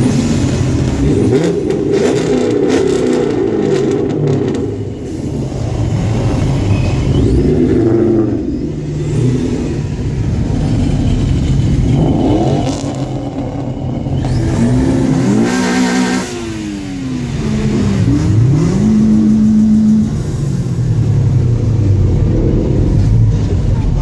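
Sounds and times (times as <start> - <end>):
car engines revving: 0.0 - 24.0
exhaust rush: 0.0 - 24.0
low rumble: 17.2 - 24.0.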